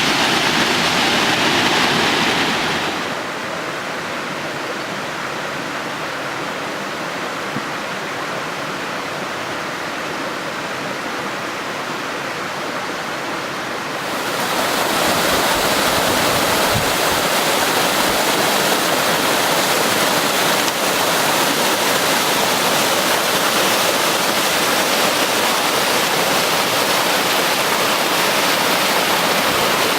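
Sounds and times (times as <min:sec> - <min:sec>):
waterfall rushing: 0:00.0 - 0:04.4, 0:10.4 - 0:29.9.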